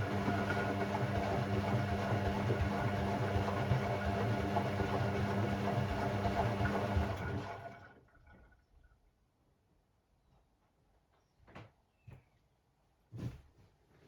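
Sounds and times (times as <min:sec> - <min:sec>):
washing machine running: 0:00.0 - 0:08.5.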